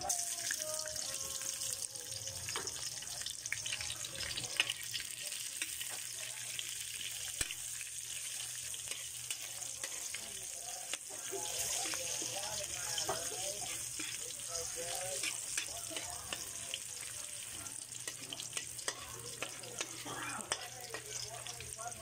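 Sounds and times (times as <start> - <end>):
vegetables sizzling in hot oil: 0.0 - 22.0
spatula tapping metal: 18.0 - 21.2.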